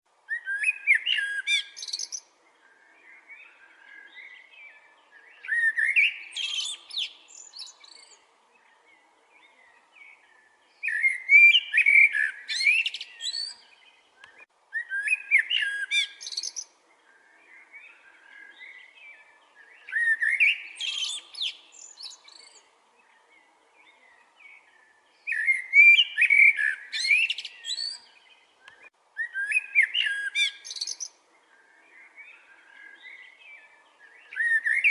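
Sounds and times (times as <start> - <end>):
songbird warbling: 0.3 - 8.8, 9.4 - 34.9
quiet bird twittering: 0.3 - 34.9.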